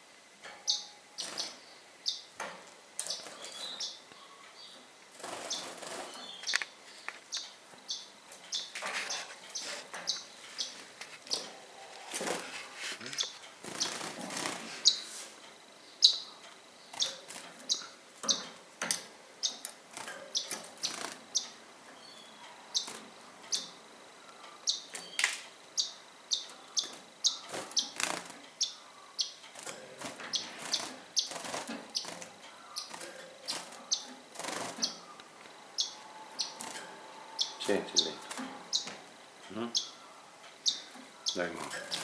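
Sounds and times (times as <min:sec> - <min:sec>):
small birds chirping: 0:00.4 - 0:42.0
rustling: 0:08.7 - 0:15.5.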